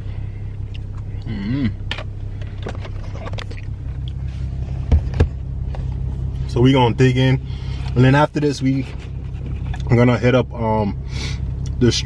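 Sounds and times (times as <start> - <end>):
car engine idling: 0.0 - 12.0
person humming: 1.2 - 1.8.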